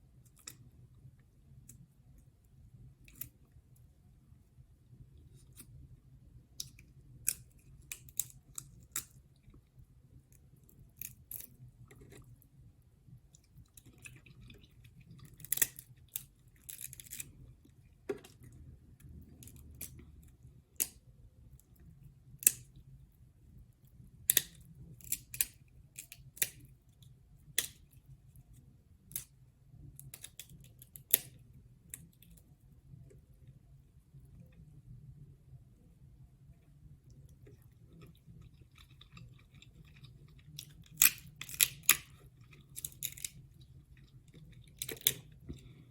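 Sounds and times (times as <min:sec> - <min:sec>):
faint low hum: 0:00.0 - 0:45.9
chewing crab legs and shrimp: 0:13.3 - 0:17.6, 0:37.3 - 0:45.9.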